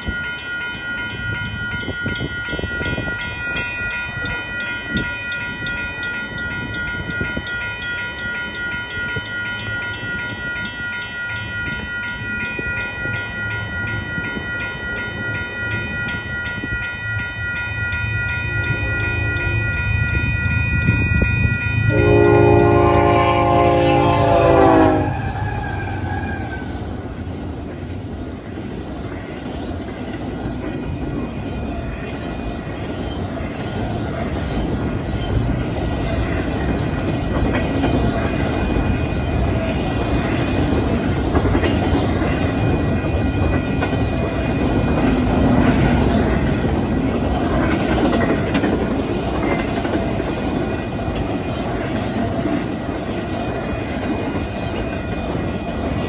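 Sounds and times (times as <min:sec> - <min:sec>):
train wheels rumbling and clacking: 0:18.6 - 0:56.0
train horn: 0:21.9 - 0:26.8.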